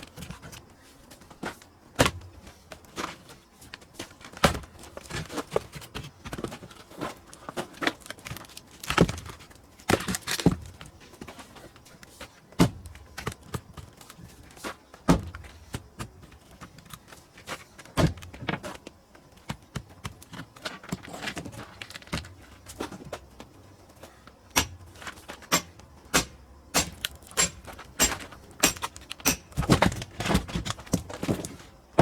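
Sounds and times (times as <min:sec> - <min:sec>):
firewood splitting knocks: 0:02.0 - 0:02.3, 0:04.3 - 0:11.3, 0:12.6 - 0:13.8, 0:15.0 - 0:16.3, 0:17.9 - 0:18.8, 0:24.5 - 0:32.0.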